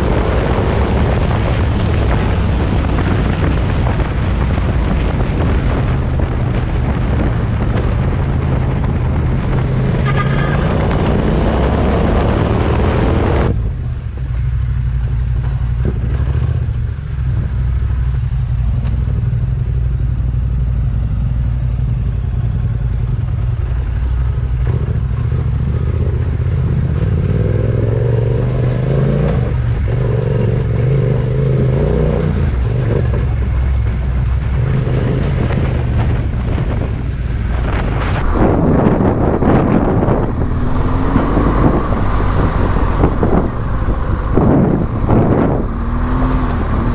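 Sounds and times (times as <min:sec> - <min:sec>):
wind rush over microphone: 0:00.0 - 0:13.8, 0:35.2 - 0:46.9
motorcycle engine running: 0:38.2 - 0:46.9.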